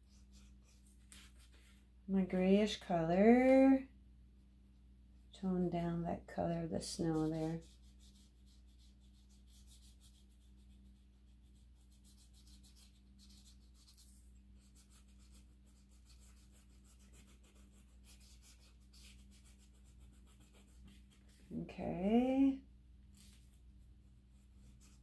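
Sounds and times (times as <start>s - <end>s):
paintbrush scratching on surface: 0.0s - 1.9s, 6.8s - 22.3s, 23.1s - 25.0s
low electrical hum: 0.0s - 25.0s.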